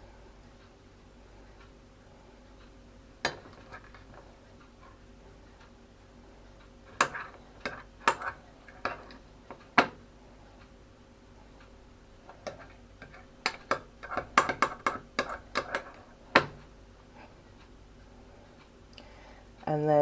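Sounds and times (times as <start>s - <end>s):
spoon clicking against crockery: 12.4s - 16.5s.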